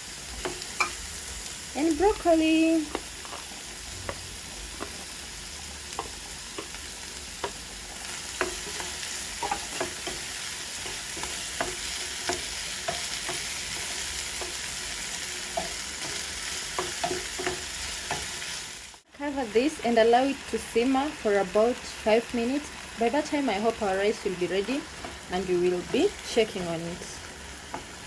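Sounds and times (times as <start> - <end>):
vegetables sizzling in a pan: 0.0 - 28.0
spoon scraping a pan: 2.9 - 18.6.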